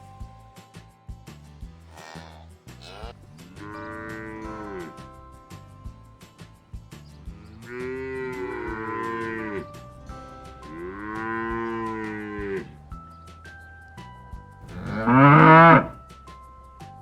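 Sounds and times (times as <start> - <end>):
cow mooing: 1.9 - 5.0, 7.6 - 9.8, 10.6 - 12.8, 14.6 - 16.0.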